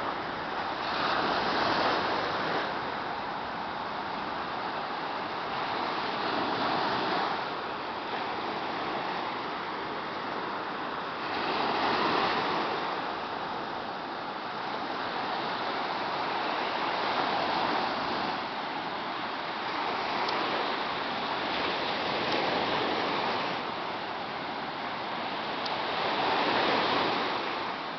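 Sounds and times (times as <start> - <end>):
waves breaking on shore: 0.0 - 27.9.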